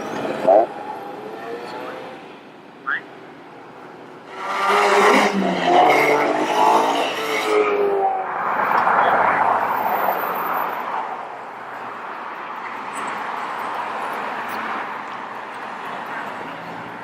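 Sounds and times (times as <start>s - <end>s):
car engine revving: 4.3s - 8.9s.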